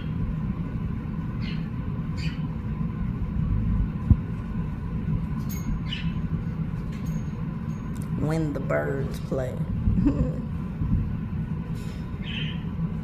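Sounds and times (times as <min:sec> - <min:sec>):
parrots chirping: 0:01.4 - 0:02.5, 0:05.6 - 0:06.2, 0:12.2 - 0:12.7
low rumble: 0:02.6 - 0:13.0.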